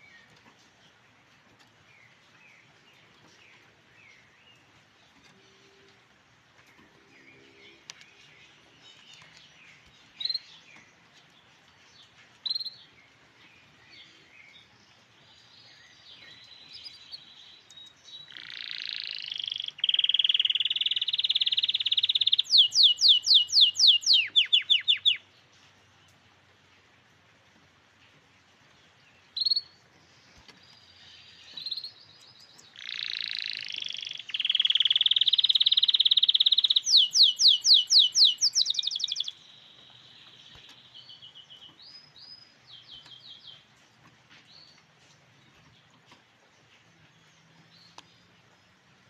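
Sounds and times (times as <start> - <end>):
canary singing: 15.3 - 25.3, 29.4 - 43.7.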